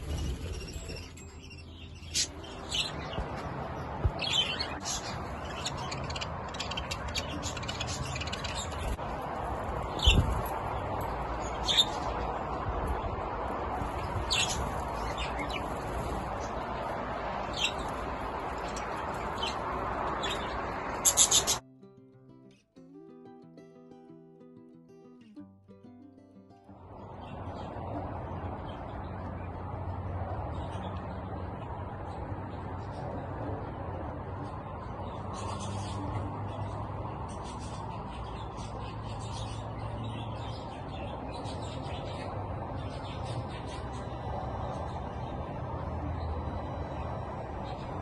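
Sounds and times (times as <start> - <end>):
budgies chirping and squawking: 0.0 - 3.4, 4.0 - 9.0, 9.8 - 10.5, 11.4 - 12.3, 13.8 - 16.7, 17.4 - 21.6, 35.0 - 36.2.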